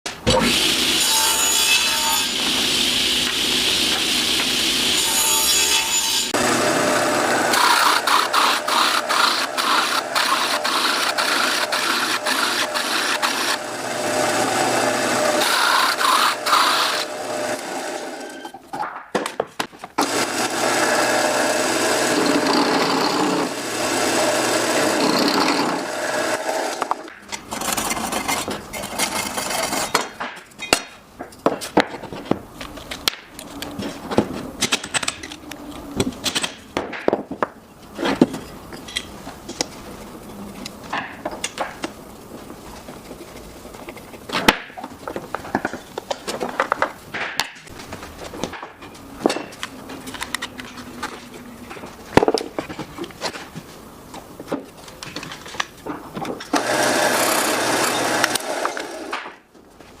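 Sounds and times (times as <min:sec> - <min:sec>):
power tool working wood: 0:00.4 - 0:18.4, 0:20.0 - 0:27.1, 0:56.6 - 0:59.2
wooden parts clicking and knocking: 0:26.7 - 0:39.7, 0:42.8 - 0:56.8.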